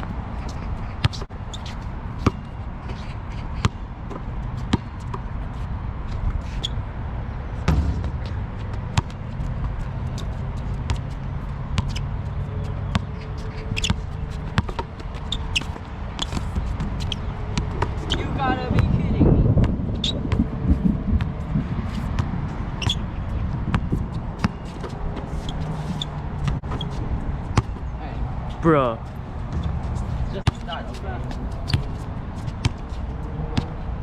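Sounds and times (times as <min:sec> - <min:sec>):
basketball bouncing: 0:03.6 - 0:05.2, 0:07.7 - 0:12.1, 0:12.9 - 0:19.0, 0:21.2 - 0:25.6, 0:29.4 - 0:30.8.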